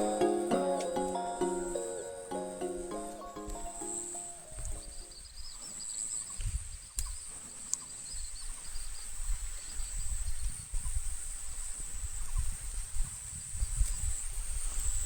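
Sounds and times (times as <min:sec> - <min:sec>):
music track: 0:00.0 - 0:05.1
wavering chirping: 0:00.0 - 0:05.3.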